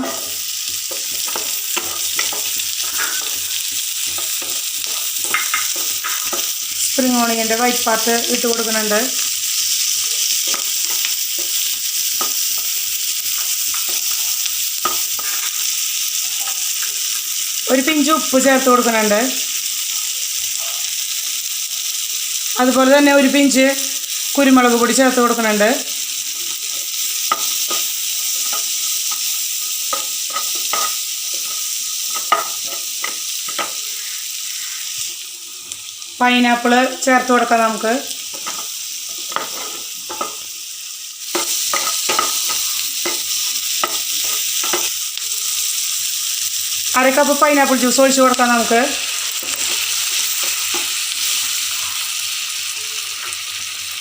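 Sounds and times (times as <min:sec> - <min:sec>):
spatula scraping and tapping pan: 0:00.0 - 0:06.6, 0:26.6 - 0:29.2, 0:29.8 - 0:33.8, 0:38.3 - 0:40.5, 0:41.3 - 0:44.9
vegetables sizzling in a frying pan: 0:00.0 - 0:54.0.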